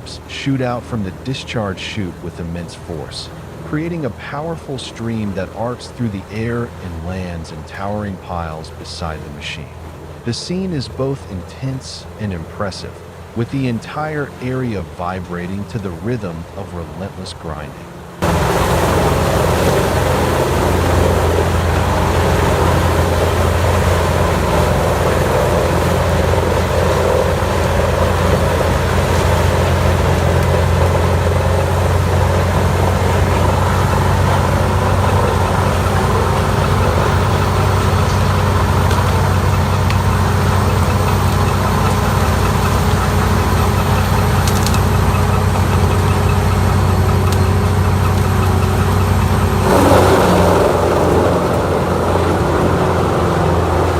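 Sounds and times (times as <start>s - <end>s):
wood grinder engine running: 12.9s - 53.9s.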